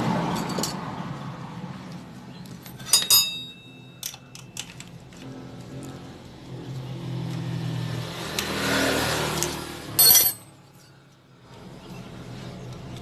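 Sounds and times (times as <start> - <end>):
metal tools clinking on engine: 0.3 - 0.8, 2.6 - 5.2, 10.0 - 11.1.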